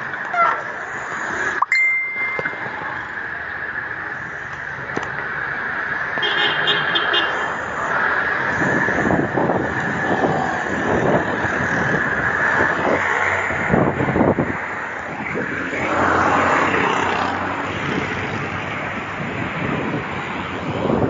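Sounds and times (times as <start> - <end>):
road noise and vehicle drone: 0.0 - 21.0
wind on microphone: 7.9 - 21.0.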